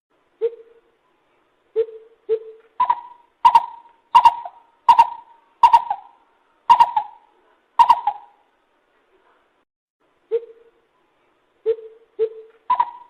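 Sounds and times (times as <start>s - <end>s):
bird calling: 1.8s - 8.4s, 11.6s - 13.0s.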